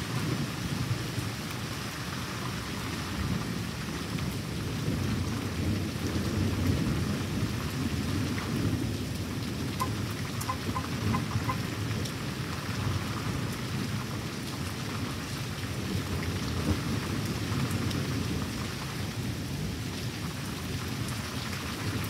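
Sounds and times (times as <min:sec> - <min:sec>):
steady rain: 0:00.0 - 0:22.0
raindrop ticks: 0:09.7 - 0:12.2.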